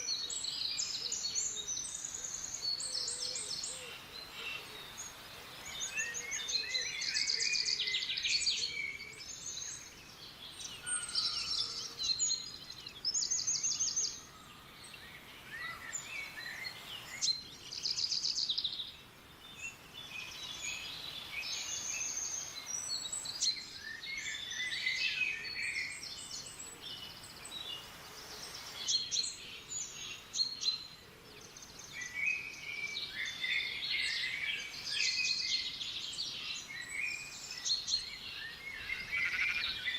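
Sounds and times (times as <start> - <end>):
faint background hiss: 0.0 - 39.9
songbirds singing and calling: 0.0 - 39.9.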